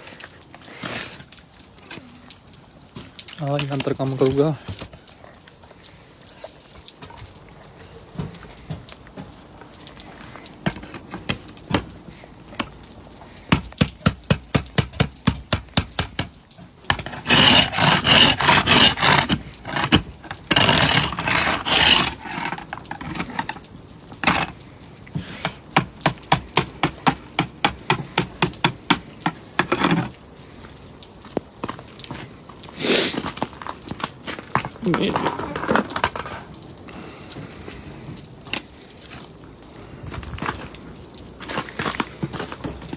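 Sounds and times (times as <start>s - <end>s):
ice scraping and cracking: 0.0s - 2.2s, 8.2s - 12.8s, 13.4s - 37.2s, 38.4s - 42.9s
metal tool tapping ice: 13.5s - 16.3s, 25.4s - 30.1s.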